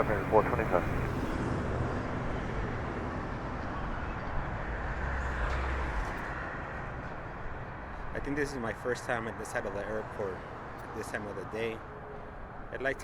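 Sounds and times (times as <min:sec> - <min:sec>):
jet engine rumble: 0:00.0 - 0:06.9.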